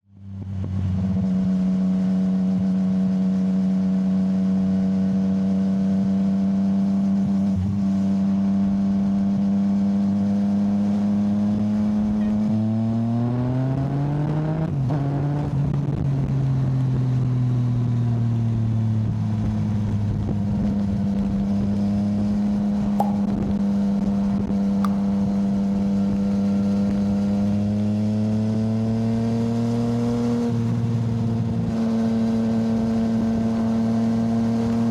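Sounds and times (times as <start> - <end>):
motorcycle engine revving: 20.6 - 34.9.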